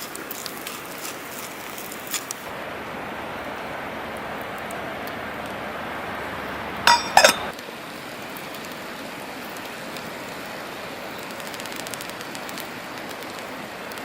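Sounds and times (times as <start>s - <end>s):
campfire crackling: 0.0s - 14.0s
steady hiss: 0.0s - 14.0s
metal or glass clinks: 6.9s - 7.5s.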